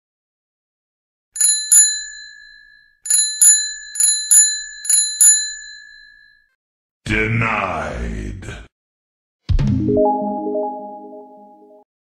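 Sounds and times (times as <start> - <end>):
bicycle bell ringing: 1.4 - 6.5.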